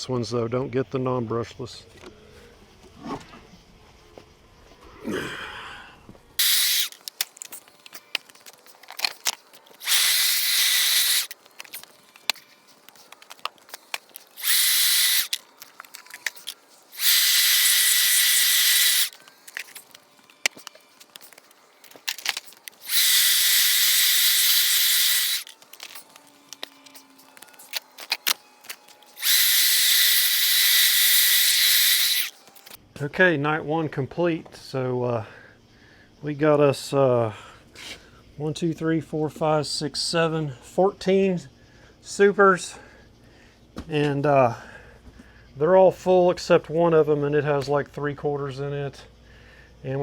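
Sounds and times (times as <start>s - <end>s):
leaf blower rushing air: 16.9s - 19.2s.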